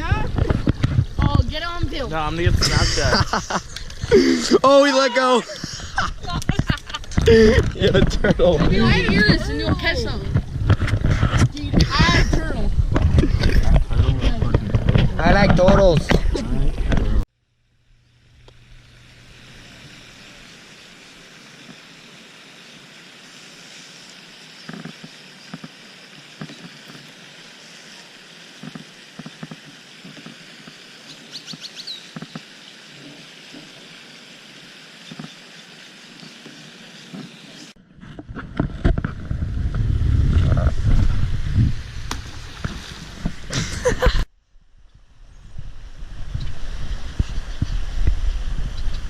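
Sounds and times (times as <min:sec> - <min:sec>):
outdoor hiss: 0:00.0 - 0:37.8, 0:39.6 - 0:49.0
rough low microphone rumble: 0:05.6 - 0:17.2, 0:38.2 - 0:43.5.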